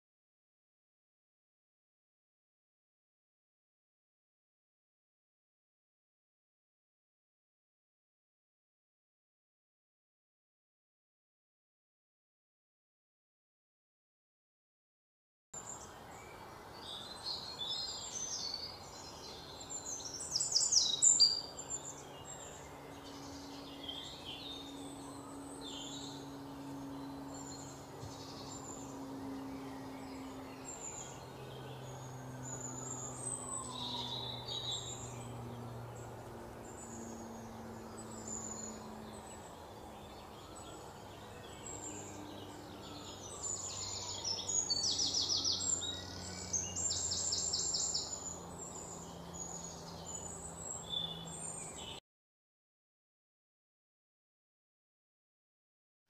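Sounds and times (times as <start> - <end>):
faint low hum: 15.6 - 52.0
small birds chirping: 15.6 - 52.0.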